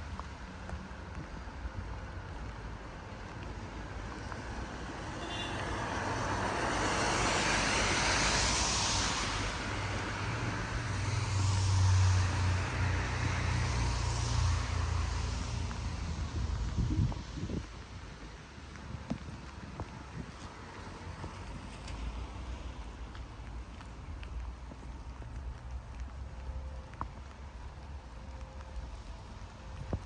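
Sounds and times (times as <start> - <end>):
tyres hissing on wet road: 0.0 - 30.0.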